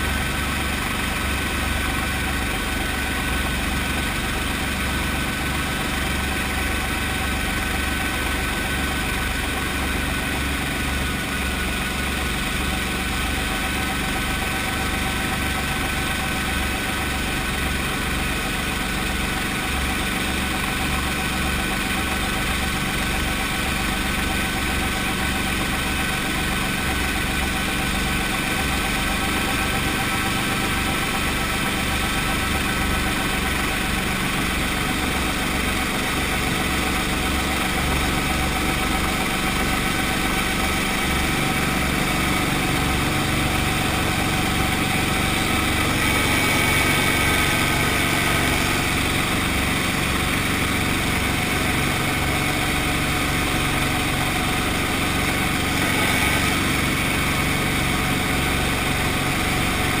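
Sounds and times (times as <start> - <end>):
helicopter piston engine running: 0.0 - 60.0.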